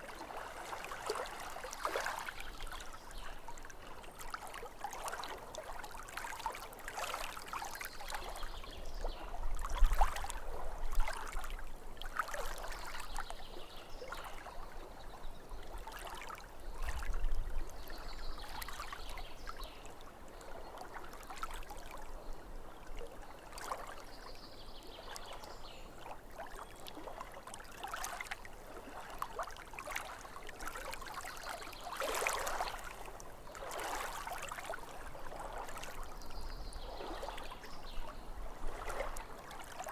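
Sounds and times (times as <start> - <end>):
small waves lapping: 0.0 - 39.9
deep low water surge: 28.0 - 39.9.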